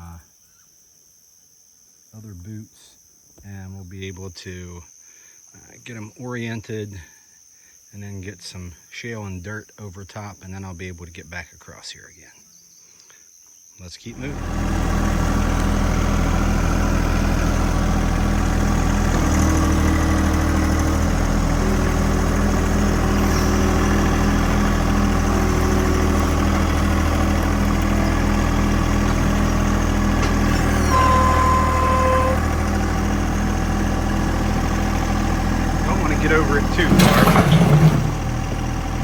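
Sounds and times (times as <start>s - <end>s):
machine engine running: 14.2s - 39.0s.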